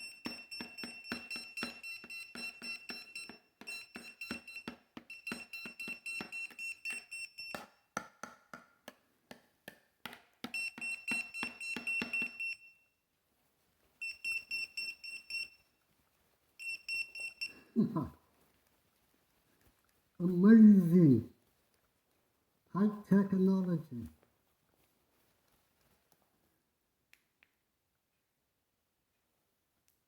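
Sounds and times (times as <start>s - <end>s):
electronic buzzer beeping: 0.0s - 7.6s, 10.6s - 12.6s.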